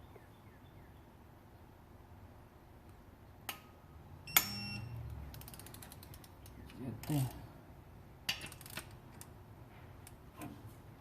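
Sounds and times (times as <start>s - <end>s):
torque wrench clicking: 8.3s - 9.3s.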